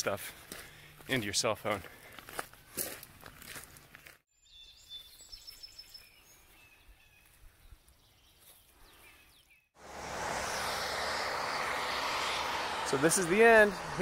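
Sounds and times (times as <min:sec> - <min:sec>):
faint birdsong: 0:01.8 - 0:09.7.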